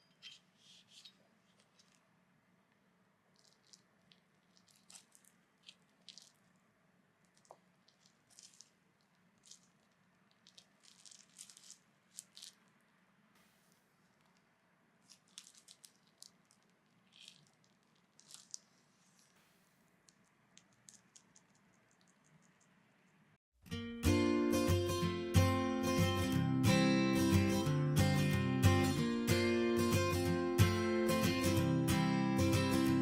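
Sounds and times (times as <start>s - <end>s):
faint room hum: 0.0s - 33.0s
soft handling clicks and squishes: 2.7s - 13.0s, 14.0s - 19.4s.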